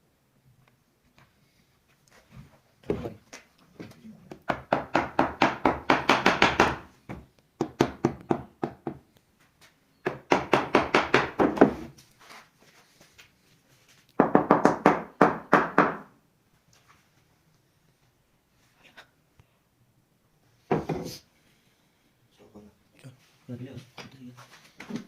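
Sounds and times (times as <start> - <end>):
rapid knocking on wood: 4.3 - 9.0, 10.1 - 11.8.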